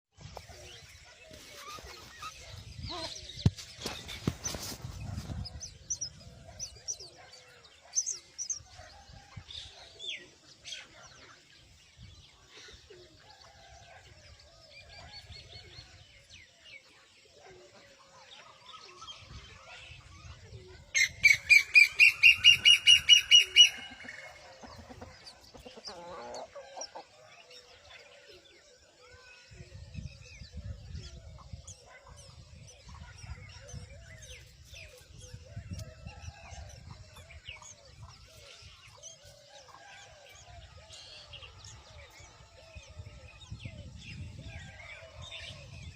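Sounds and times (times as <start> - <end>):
other birds chirping: 0.2 - 14.1, 17.7 - 28.4
young bird chirping loudly: 21.0 - 24.4.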